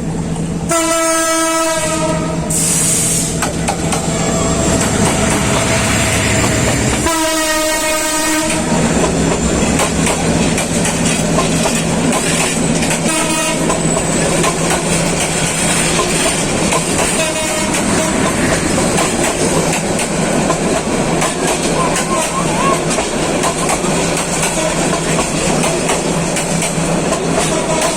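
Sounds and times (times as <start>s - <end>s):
train wheels rumbling on track: 0.0s - 27.9s
train horn blasts: 0.7s - 8.9s, 13.0s - 13.8s, 17.1s - 18.4s.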